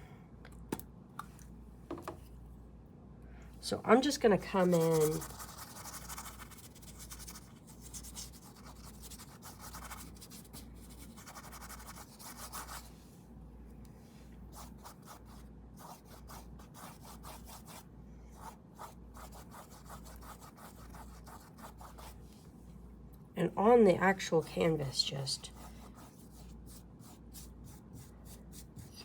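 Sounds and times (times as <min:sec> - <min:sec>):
paintbrush scrubbing on canvas: 0:04.4 - 0:13.0, 0:25.4 - 0:29.0.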